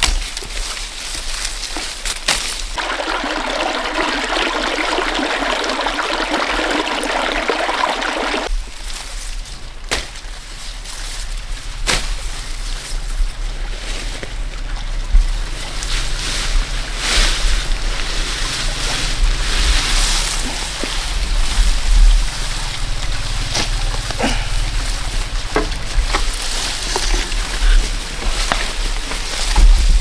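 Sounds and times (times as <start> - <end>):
water trickling: 2.8 - 8.5.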